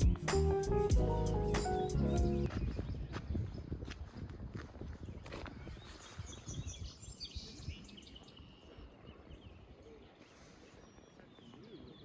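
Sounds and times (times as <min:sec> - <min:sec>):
small birds chirping: 0:04.9 - 0:12.0.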